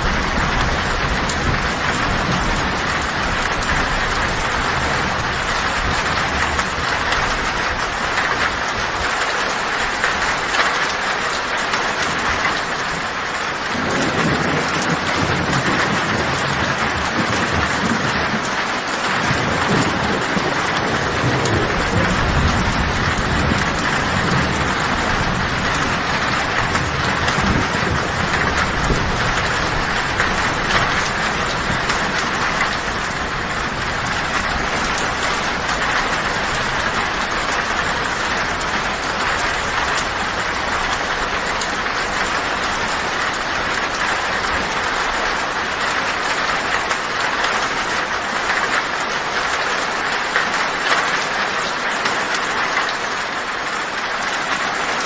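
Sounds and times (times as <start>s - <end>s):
low thunder rumble: 0.0s - 9.1s, 12.1s - 46.6s
heavy rain on a tin roof: 0.0s - 55.0s.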